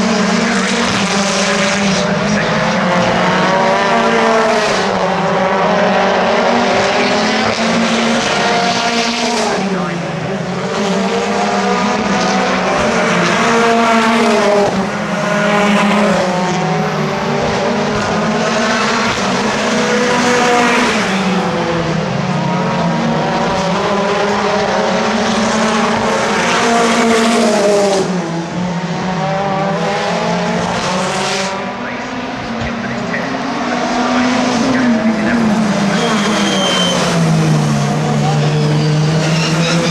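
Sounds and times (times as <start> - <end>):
racing cars passing at speed: 0.0 - 39.9.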